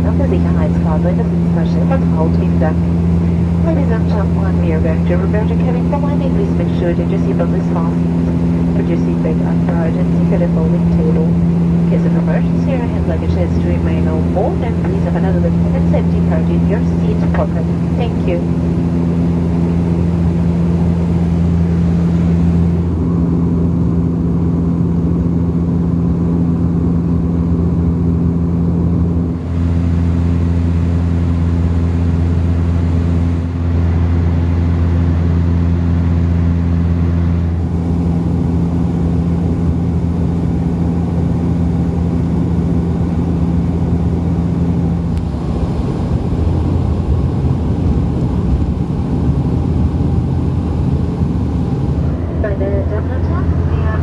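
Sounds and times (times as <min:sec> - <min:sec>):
airflow noise: 0:00.0 - 0:23.0, 0:44.8 - 0:54.0
propeller engine drone: 0:00.0 - 0:54.0.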